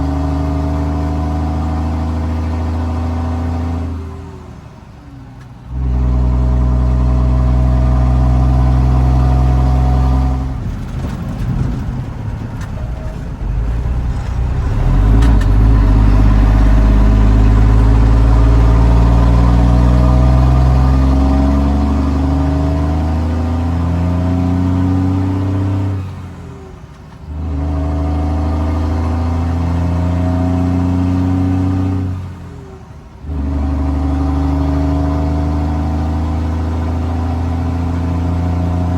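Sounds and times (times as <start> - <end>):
diesel truck accelerating: 0.0 - 38.9.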